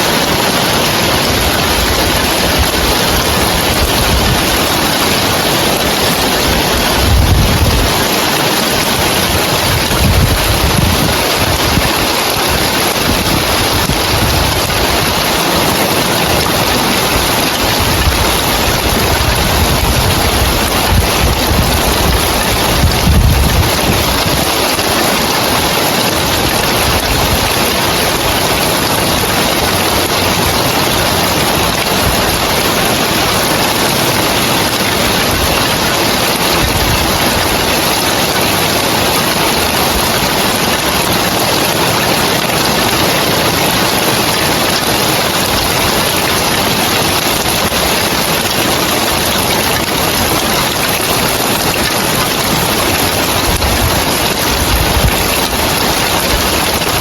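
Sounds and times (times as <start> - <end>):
heavy rain on a tiled roof: 0.0 - 57.0.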